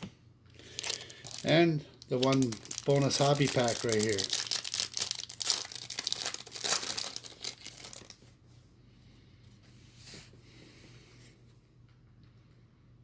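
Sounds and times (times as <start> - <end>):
foil wrapper tearing and crinkling: 0.6 - 8.2.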